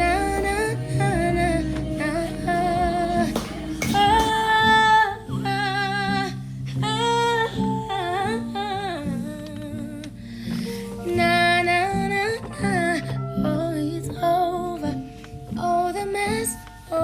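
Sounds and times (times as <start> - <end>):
woman singing wavering notes: 0.0 - 10.0
instrumental backing: 0.0 - 17.0.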